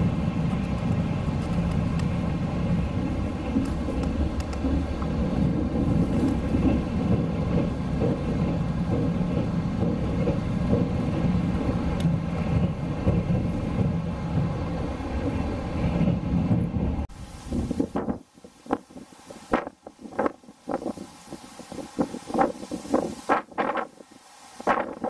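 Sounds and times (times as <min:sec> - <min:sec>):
wheels rumbling on rails: 0:00.0 - 0:25.0
faint clicks: 0:03.6 - 0:05.2.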